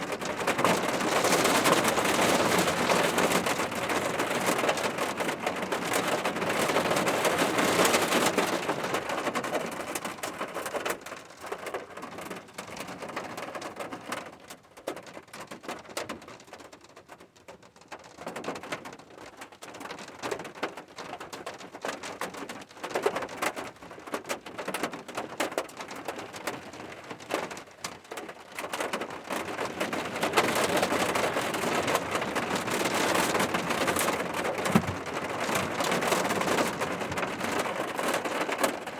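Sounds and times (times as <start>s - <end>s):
rain falling: 0.0s - 10.7s, 24.4s - 38.9s.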